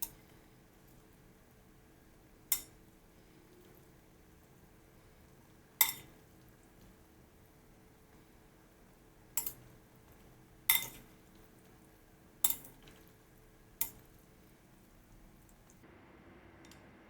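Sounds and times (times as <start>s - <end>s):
utensil clinking against dish: 5.8s - 6.2s, 9.3s - 11.5s.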